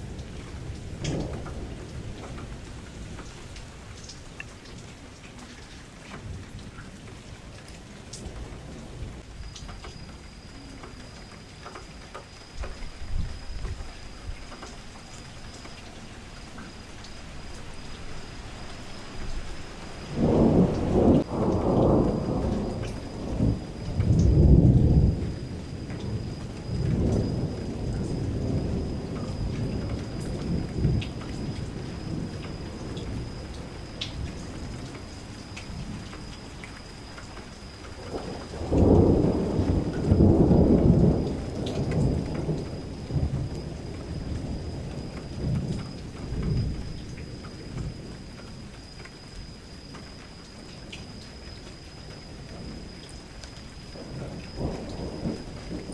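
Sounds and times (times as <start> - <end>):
thunder rumbling: 0.0 - 4.8, 18.9 - 48.8, 53.8 - 55.9
rain against a window: 0.0 - 55.9.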